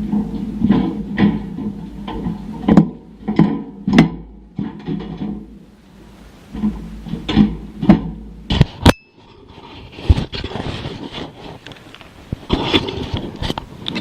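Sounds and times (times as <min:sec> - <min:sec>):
sharp click with high ringing tone: 0:08.9 - 0:09.2.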